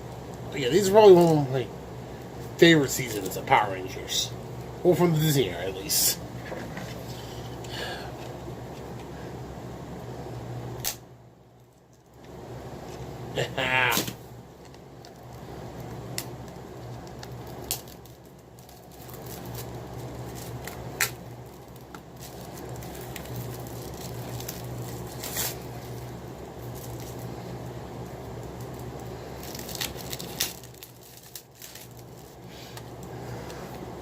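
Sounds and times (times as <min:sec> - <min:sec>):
steady low hum: 0:00.0 - 0:34.0
packaging clicks and crinkles: 0:14.6 - 0:33.1.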